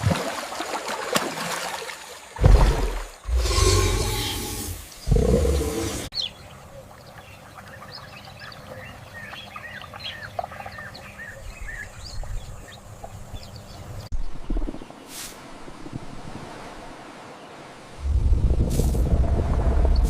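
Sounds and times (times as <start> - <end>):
birds chirping: 2.9 - 15.2
low rumble: 18.0 - 20.0.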